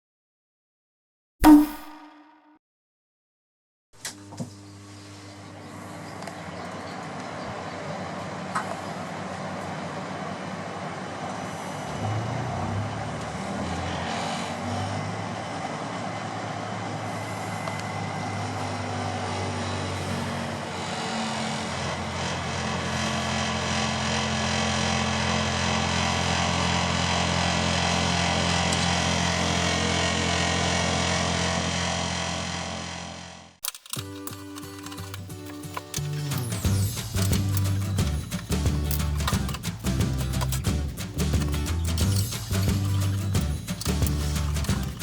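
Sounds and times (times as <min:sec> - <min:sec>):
air conditioner unit rushing: 0:15.0 - 0:33.0, 0:36.0 - 0:45.0
low hum: 0:36.0 - 0:45.0.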